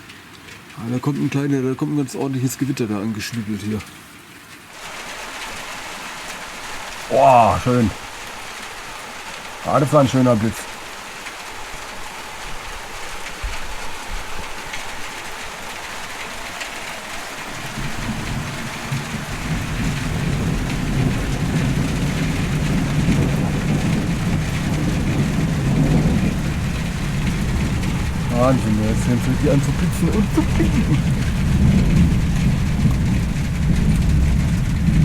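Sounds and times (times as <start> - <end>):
steady rain falling: 0.0 - 35.0
thunder rumbling: 16.4 - 35.0.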